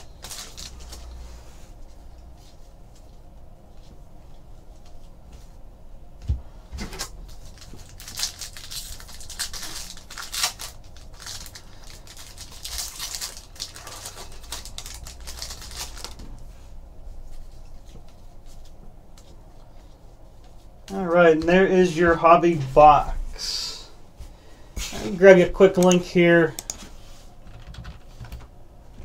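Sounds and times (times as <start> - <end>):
plastic packaging rustling: 0.0 - 1.9, 6.8 - 16.5.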